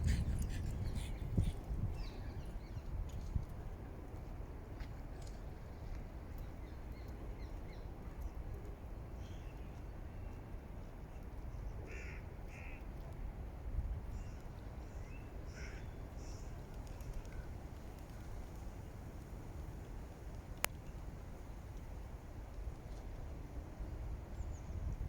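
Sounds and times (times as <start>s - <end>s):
steady low rumble: 0.0s - 2.8s
harsh bird caws: 11.9s - 12.8s, 15.5s - 16.4s.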